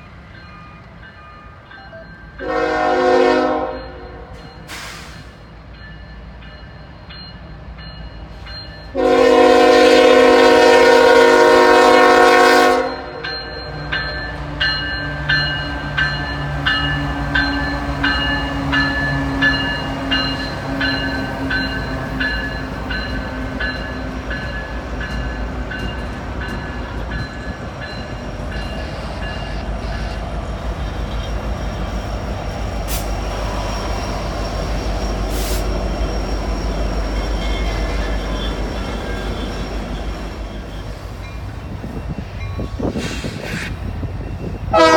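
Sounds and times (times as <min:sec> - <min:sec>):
locomotive engine hum: 0:00.0 - 0:44.9
train rumble: 0:00.0 - 0:44.9
locomotive air horn: 0:02.4 - 0:05.2, 0:08.9 - 0:13.2.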